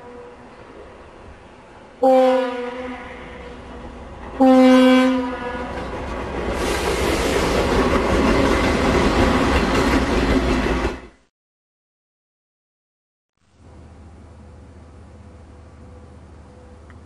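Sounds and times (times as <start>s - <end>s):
locomotive air horn blast: 0.0s - 0.5s, 2.0s - 3.8s, 4.4s - 5.8s
train passing with rushing noise: 0.0s - 11.3s, 13.6s - 17.0s.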